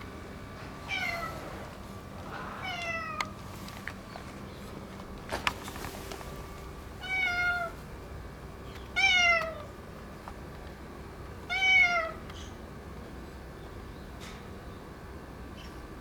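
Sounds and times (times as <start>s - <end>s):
cat meowing: 0.9s - 1.6s, 2.6s - 3.3s, 7.0s - 7.8s, 9.0s - 9.7s, 11.5s - 12.2s.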